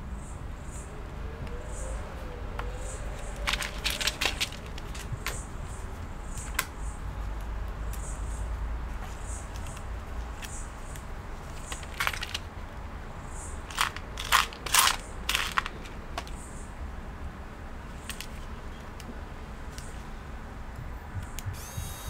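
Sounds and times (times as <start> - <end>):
crunching crinkling bursts: 3.2 - 8.0, 8.8 - 13.0, 13.6 - 16.5.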